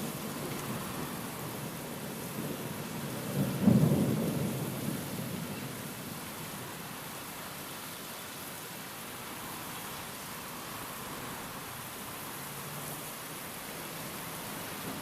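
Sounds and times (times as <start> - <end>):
steady rain: 0.0 - 15.0
thunder clap rumbling: 3.2 - 5.5.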